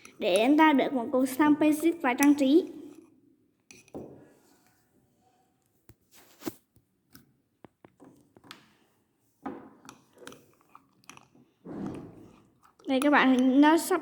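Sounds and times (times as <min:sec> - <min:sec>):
stirrer clicking against cup: 0:09.8 - 0:13.9
sticky slime squelching: 0:10.0 - 0:14.0.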